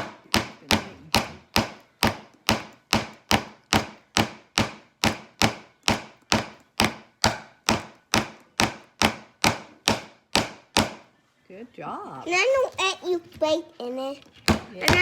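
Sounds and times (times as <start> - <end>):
hammer striking nail into wood: 0.0 - 11.0.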